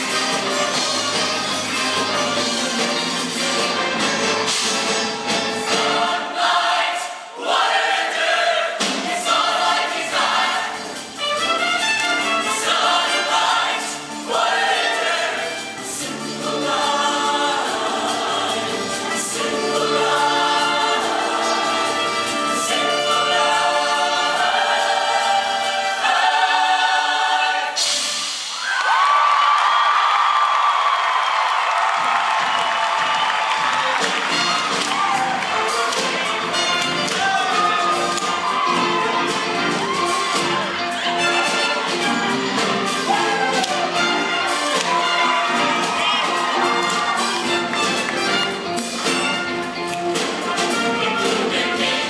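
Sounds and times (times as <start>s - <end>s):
instrumental accompaniment: 0.0s - 6.9s, 7.6s - 28.4s, 32.9s - 52.0s
choir singing in harmony: 0.0s - 28.5s, 35.2s - 48.8s, 50.2s - 52.0s
audience cheering: 28.4s - 48.6s.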